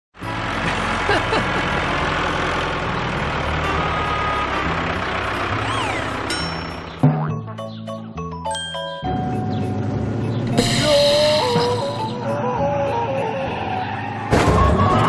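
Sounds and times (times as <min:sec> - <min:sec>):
cartoon engine rumble: 0:00.8 - 0:08.2.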